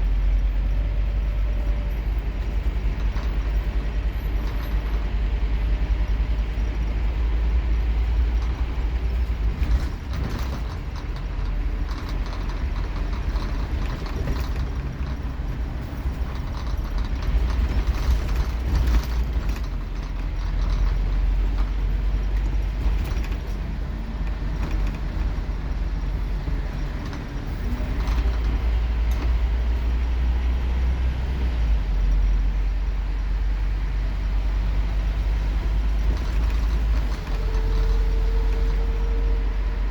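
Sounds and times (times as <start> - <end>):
bus engine droning: 0.0 - 39.9
body panels rattling and creaking: 7.9 - 29.8, 35.7 - 39.2.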